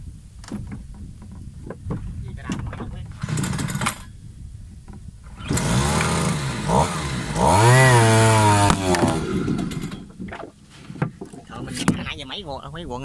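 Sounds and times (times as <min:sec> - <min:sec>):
two-stroke engine running hard: 0:05.4 - 0:10.0.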